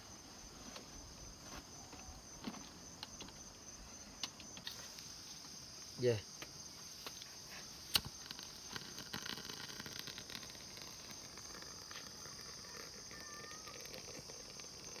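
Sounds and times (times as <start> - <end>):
crickets and insects chirring: 0.0 - 15.0
small ticks: 6.4 - 15.0.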